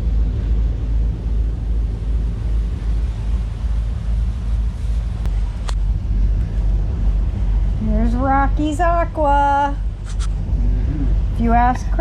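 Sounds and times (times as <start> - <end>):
boat engine rumble: 0.0 - 12.0
short clicks: 10.0 - 10.3.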